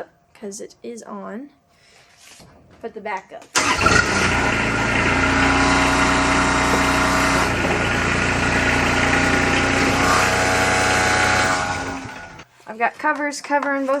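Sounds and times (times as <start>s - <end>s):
engine idling: 3.6s - 12.4s.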